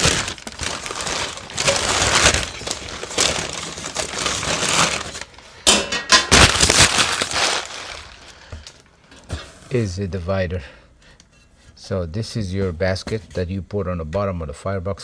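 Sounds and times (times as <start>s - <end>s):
packaging crinkling: 0.0s - 8.9s.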